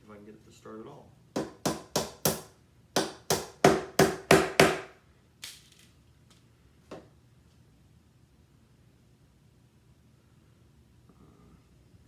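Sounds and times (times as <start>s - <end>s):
hammer striking nail into wood: 1.4s - 5.0s.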